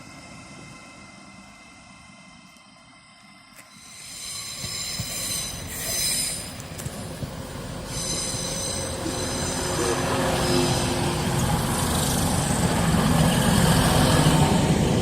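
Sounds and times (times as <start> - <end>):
train engine hum: 0.0 - 15.0
train wheels squealing on rails: 3.0 - 15.0.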